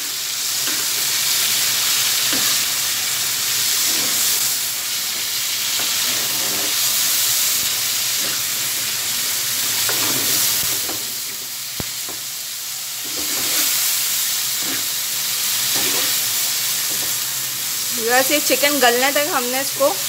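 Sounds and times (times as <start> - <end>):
chicken sizzling in oil: 0.0 - 20.0
metal spatula scraping pan: 3.8 - 4.4, 13.0 - 13.8, 15.7 - 16.2.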